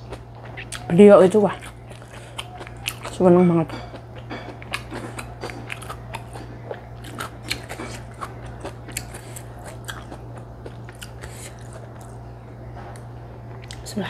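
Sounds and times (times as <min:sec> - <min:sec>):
steady low hum: 0:00.0 - 0:14.0
person chewing noodles: 0:01.5 - 0:12.2.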